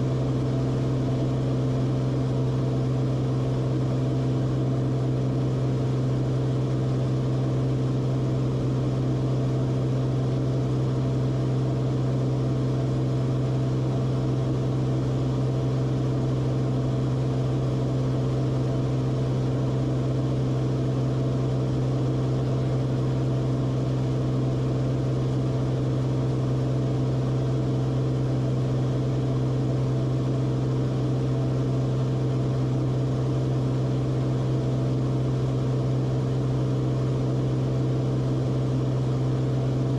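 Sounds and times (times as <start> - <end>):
aircraft engine and propeller drone: 0.0 - 39.9.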